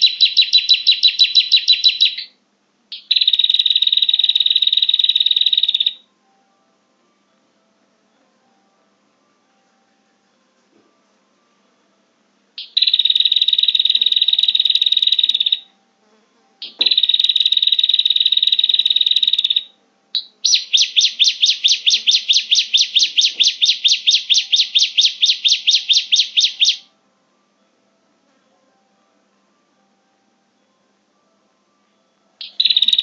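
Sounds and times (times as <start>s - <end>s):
bird buzzy high trills: 0.0s - 6.0s, 12.6s - 15.7s, 16.6s - 26.9s, 32.4s - 33.0s
bird repeated sharp notes: 0.0s - 6.0s, 12.6s - 15.7s, 16.6s - 26.9s, 32.4s - 33.0s.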